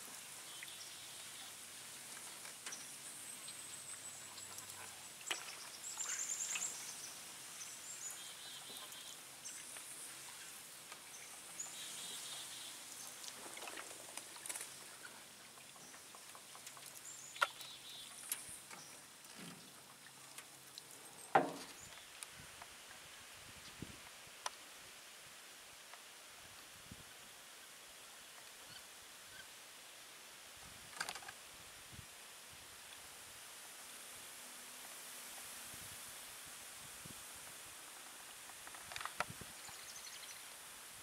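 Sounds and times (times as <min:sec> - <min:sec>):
sharp knocks: 0:21.4 - 0:21.7.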